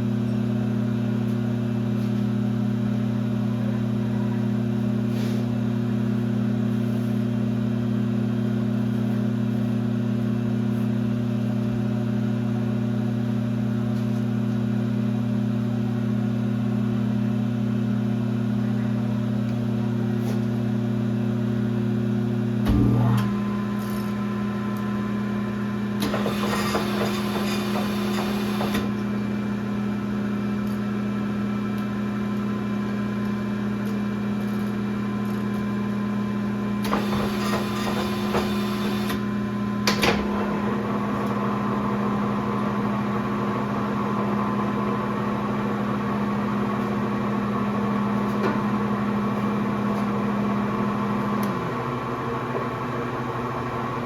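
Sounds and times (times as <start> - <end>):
lathe running with hum: 0.0 - 54.0.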